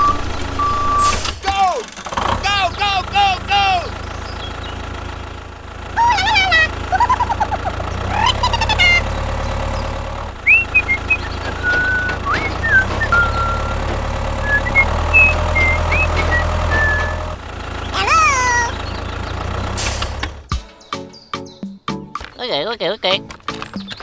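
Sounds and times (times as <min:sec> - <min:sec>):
low engine-like hum: 0:00.0 - 0:20.5
squeaky swooping calls: 0:06.0 - 0:09.3, 0:10.4 - 0:19.0.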